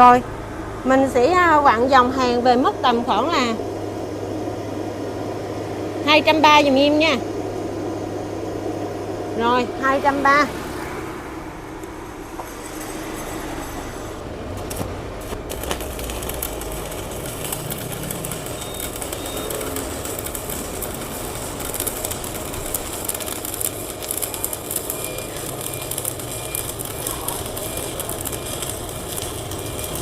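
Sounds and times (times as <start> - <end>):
welding arc crackling: 11.8 - 30.0.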